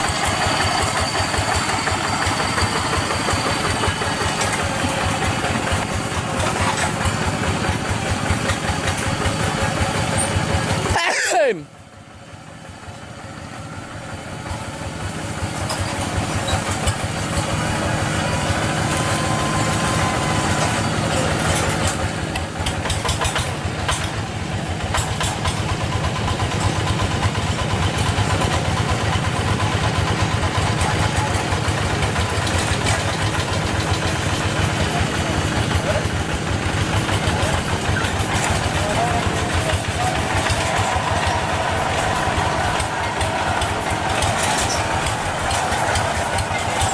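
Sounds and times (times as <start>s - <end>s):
tractor engine running: 0.0s - 46.9s.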